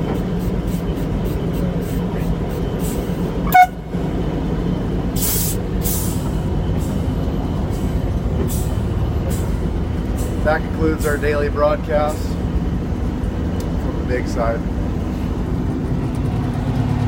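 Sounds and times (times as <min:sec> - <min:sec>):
diesel truck engine running: 0:00.0 - 0:17.0
road rumble: 0:00.0 - 0:17.0.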